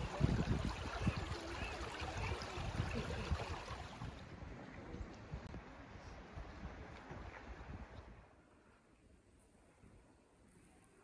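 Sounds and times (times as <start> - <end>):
flowing water rushing: 0.0 - 4.9.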